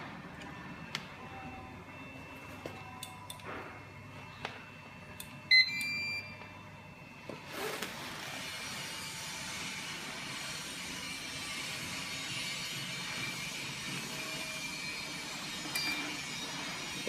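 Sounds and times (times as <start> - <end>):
loud electronic beep: 5.5 - 6.3.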